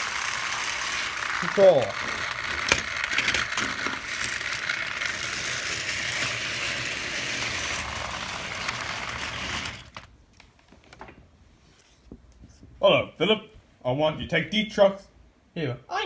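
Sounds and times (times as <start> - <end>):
toy train motor whirring: 0.0 - 10.1.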